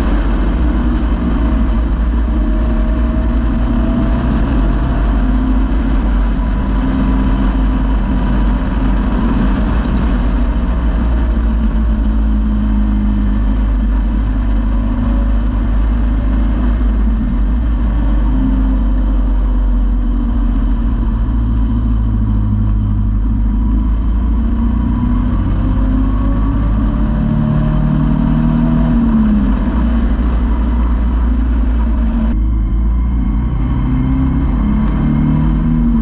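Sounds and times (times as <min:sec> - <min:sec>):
car engine cruising: 0:00.0 - 0:36.0
road noise: 0:00.0 - 0:36.0
wind noise: 0:00.0 - 0:36.0.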